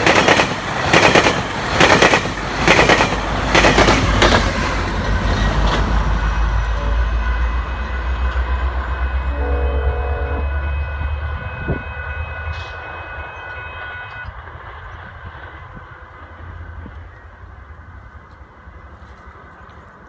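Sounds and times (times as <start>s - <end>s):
diesel train rumbling past: 0.0s - 20.0s
train horn blast: 6.1s - 14.5s.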